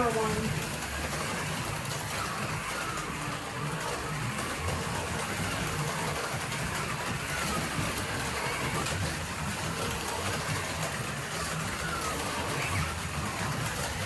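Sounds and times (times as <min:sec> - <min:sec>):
small electric motors whining: 0:00.0 - 0:14.0.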